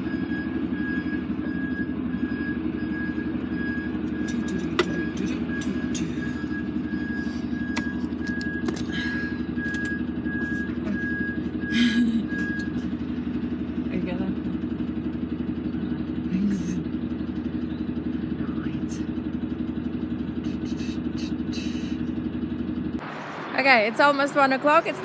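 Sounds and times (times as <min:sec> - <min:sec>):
high electronic warning beeps: 0:00.0 - 0:13.0
diesel truck engine idling: 0:00.0 - 0:25.0.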